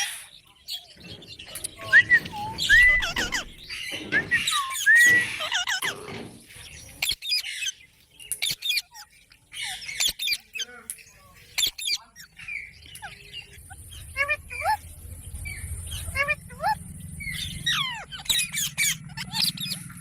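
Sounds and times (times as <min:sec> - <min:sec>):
parrot squawking: 0:01.7 - 0:06.1, 0:13.0 - 0:14.8, 0:15.9 - 0:20.0.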